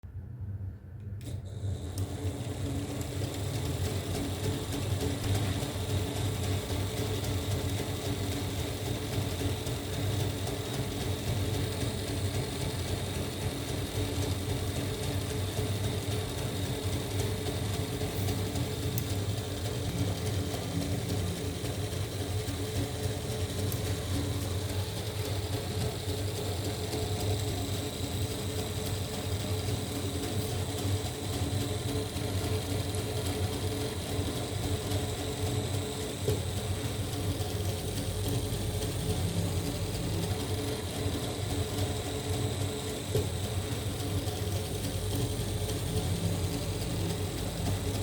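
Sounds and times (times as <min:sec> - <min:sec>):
small electric motor whirring: 0:01.2 - 0:48.0.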